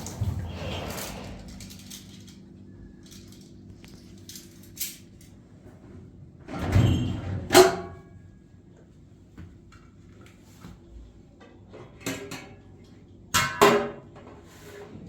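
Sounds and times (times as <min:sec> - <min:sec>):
object scraping: 0:00.0 - 0:02.5.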